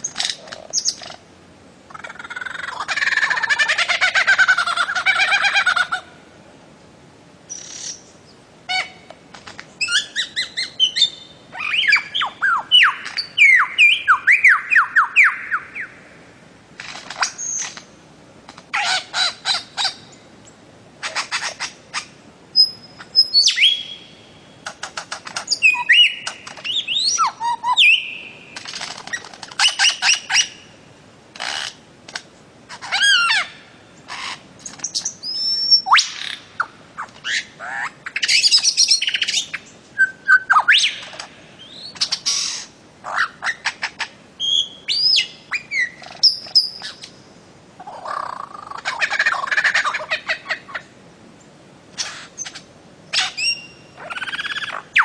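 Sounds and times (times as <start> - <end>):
bird calling with whistled notes: 7.5 - 9.1, 9.8 - 16.0, 17.2 - 17.8, 21.0 - 24.6, 25.3 - 30.7, 32.8 - 47.2, 52.0 - 55.0.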